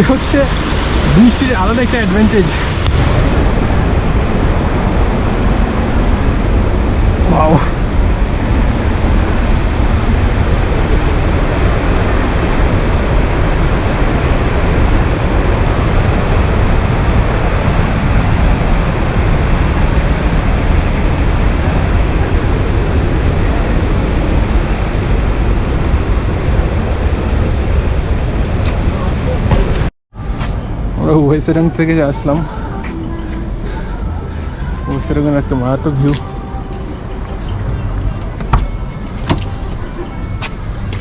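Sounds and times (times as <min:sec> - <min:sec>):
waterfall rushing: 0:00.0 - 0:29.9.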